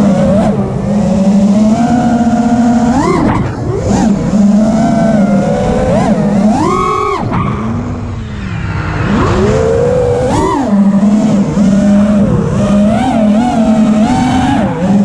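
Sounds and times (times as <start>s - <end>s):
quadcopter motors whining: 0.0s - 15.0s
rush of air: 7.9s - 10.9s.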